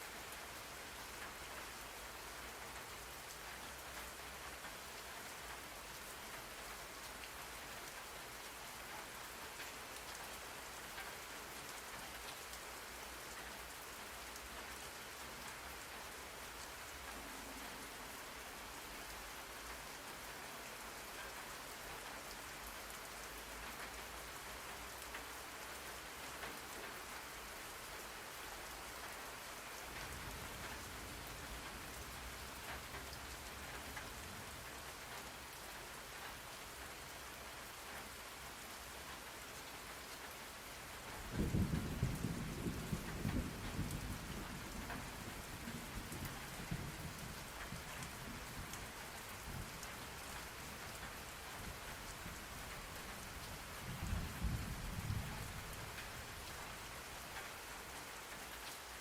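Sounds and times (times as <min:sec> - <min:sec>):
steady rain falling: 0:00.0 - 0:59.0
low rumble of thunder: 0:41.1 - 0:49.8, 0:51.6 - 0:56.6.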